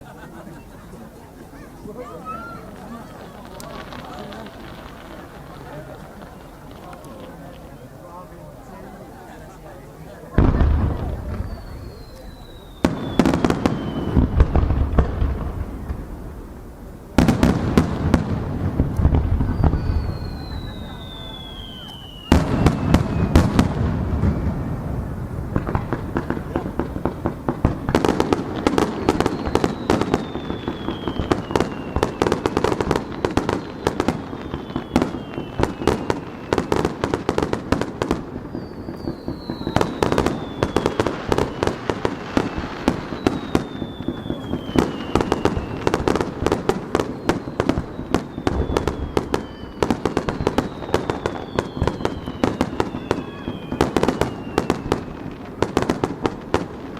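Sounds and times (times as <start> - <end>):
fireworks bangs and crackling: 0.0 - 56.9
falling whistling tones: 10.8 - 16.1, 19.3 - 24.9, 28.8 - 37.0, 38.4 - 46.2, 47.0 - 55.2.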